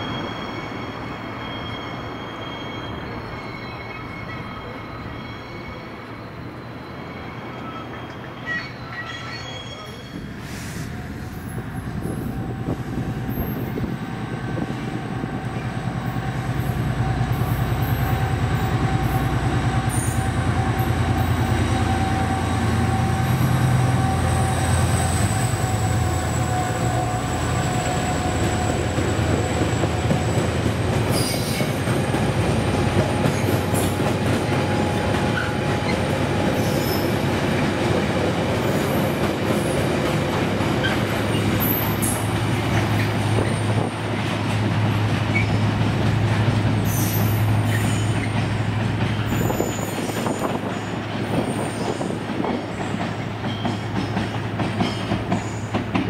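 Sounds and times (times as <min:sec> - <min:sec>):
high wheel squeal: 0:00.0 - 0:14.8, 0:15.6 - 0:31.9, 0:45.2 - 0:45.7, 0:46.8 - 0:53.9
diesel locomotive engine: 0:00.0 - 0:56.0.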